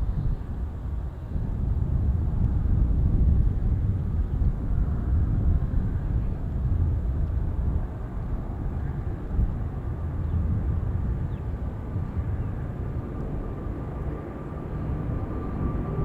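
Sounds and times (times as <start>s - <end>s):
wind buffeting microphone: 0.0s - 16.0s
distant jet taking off: 8.9s - 16.0s.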